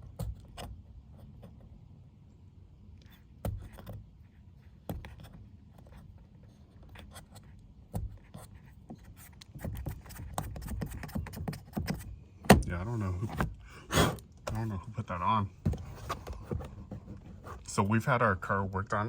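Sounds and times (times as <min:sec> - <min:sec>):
plastic tool scraping adhesive: 0:08.1 - 0:14.6.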